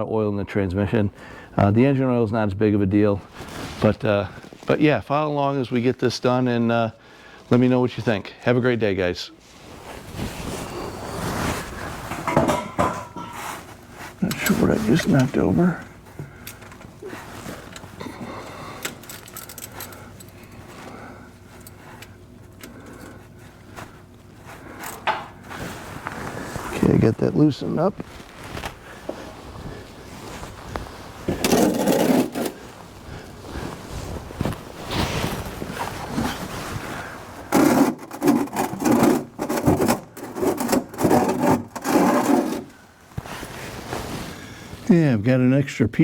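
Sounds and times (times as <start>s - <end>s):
hand tools clinking and rattling: 18.7s - 20.7s.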